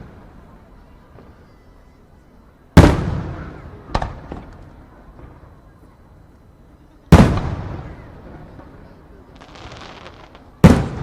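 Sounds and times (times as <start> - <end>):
firework shells bursting: 9.4 - 11.0.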